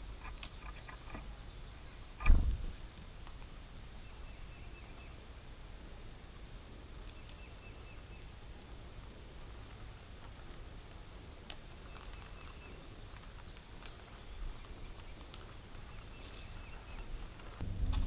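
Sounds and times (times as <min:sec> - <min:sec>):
wild birds calling faintly: 0:00.0 - 0:17.6
low outdoor rumble: 0:00.0 - 0:18.0.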